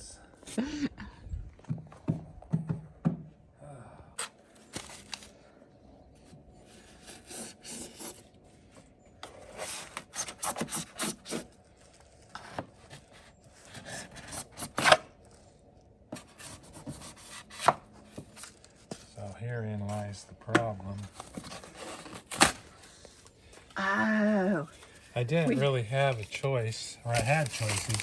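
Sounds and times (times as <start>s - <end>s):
foam insulation being scraped: 6.8s - 8.3s, 9.3s - 11.6s, 12.8s - 15.0s, 16.2s - 17.7s, 20.9s - 22.7s, 27.0s - 28.0s.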